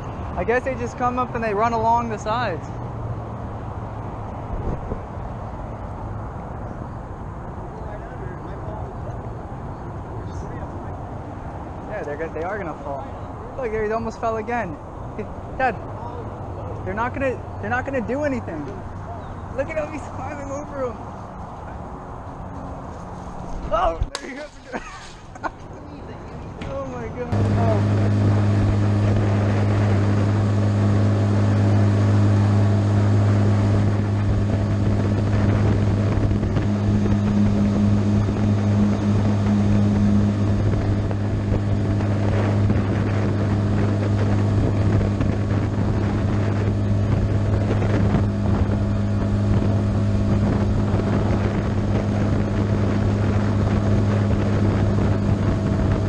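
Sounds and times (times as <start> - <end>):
wind noise on microphone: 0.0 - 12.7, 26.7 - 56.0
outboard motor humming: 27.3 - 56.0.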